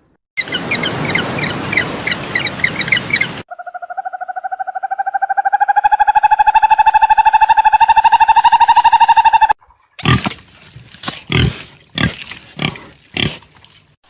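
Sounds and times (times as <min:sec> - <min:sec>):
birds chirping: 0:00.4 - 0:10.0
pulsing animal call: 0:03.5 - 0:09.6.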